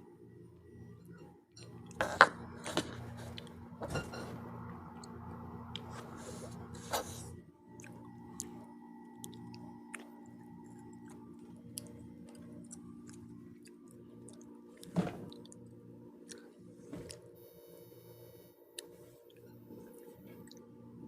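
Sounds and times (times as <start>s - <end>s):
faint steady hum: 0.0s - 21.0s
person chewing: 5.7s - 8.6s, 9.2s - 15.6s, 18.7s - 20.6s.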